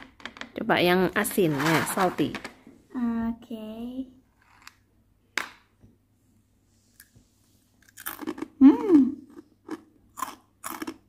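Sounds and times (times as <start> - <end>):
child chewing crunchy crackers: 7.8 - 8.6, 9.2 - 11.0
hummed mm voice: 8.6 - 9.2.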